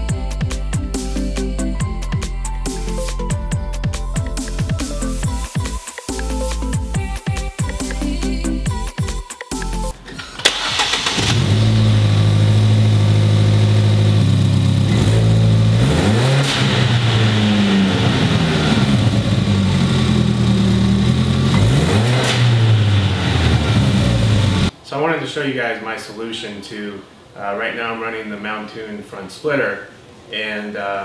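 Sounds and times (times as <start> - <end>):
car engine starting and idling: 10.0 - 24.7
car engine revving: 10.4 - 24.7.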